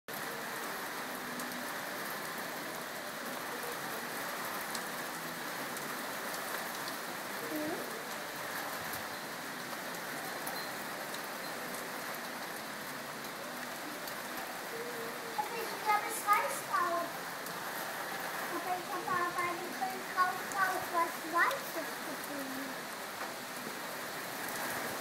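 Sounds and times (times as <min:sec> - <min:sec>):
rain falling: 0:00.1 - 0:25.0
raindrop ticks: 0:15.4 - 0:17.6, 0:18.5 - 0:23.8.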